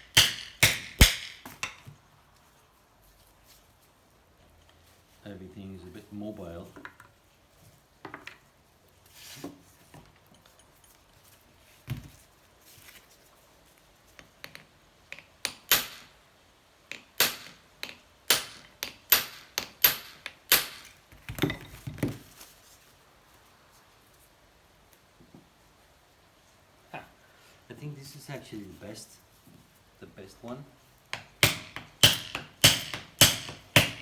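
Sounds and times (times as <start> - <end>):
hammer striking metal: 0.0 - 1.8, 16.9 - 20.9, 31.1 - 34.0.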